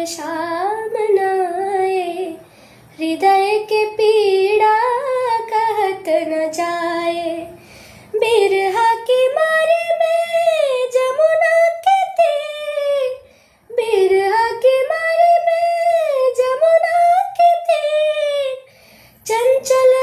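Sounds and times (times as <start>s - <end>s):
person singing unaccompanied: 3.0s - 7.6s, 8.2s - 18.7s, 19.3s - 20.0s.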